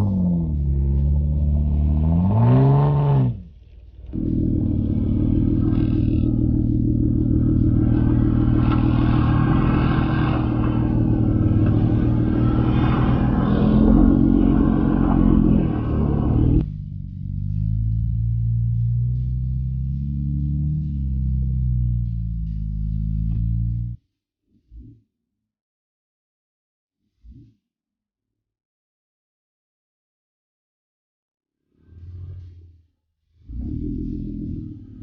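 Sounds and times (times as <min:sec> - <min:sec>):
jeep engine revving: 0:00.0 - 0:24.0.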